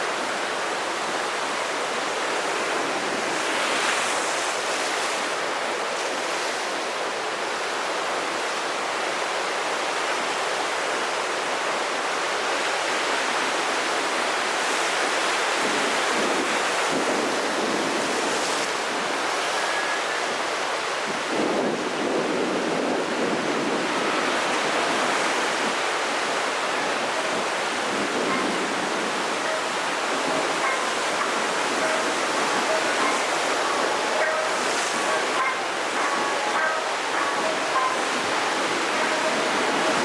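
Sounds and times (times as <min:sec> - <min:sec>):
waves breaking: 0:00.0 - 0:08.5, 0:12.6 - 0:40.0
wind: 0:00.0 - 0:40.0.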